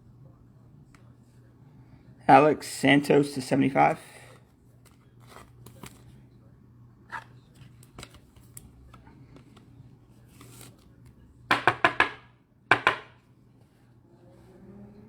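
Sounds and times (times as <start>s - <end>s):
cards and packaging rustling: 4.4s - 6.2s, 7.4s - 11.0s
sharp taps on table: 11.5s - 13.1s.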